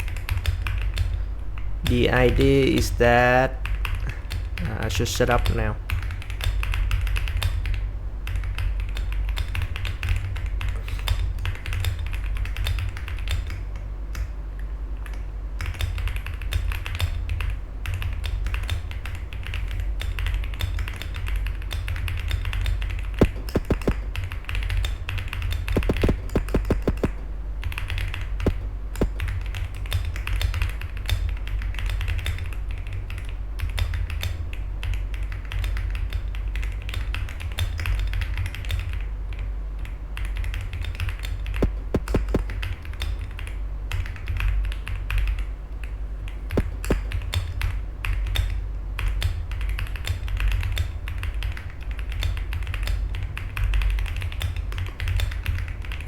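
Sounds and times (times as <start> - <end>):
fast typing on keyboard: 0.0 - 1.2, 5.9 - 10.7, 11.4 - 13.5, 15.6 - 39.0, 40.2 - 45.4, 46.6 - 47.2, 49.2 - 56.0
low fan hum: 0.0 - 56.0.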